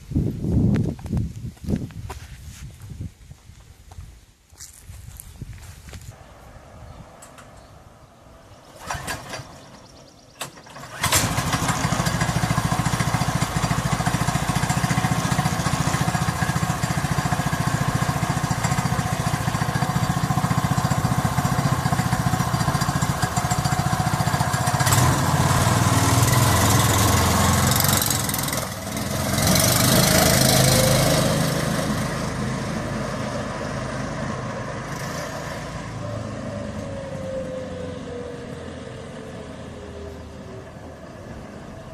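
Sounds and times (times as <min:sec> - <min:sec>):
small engine starting and revving: 0:08.5 - 0:41.9.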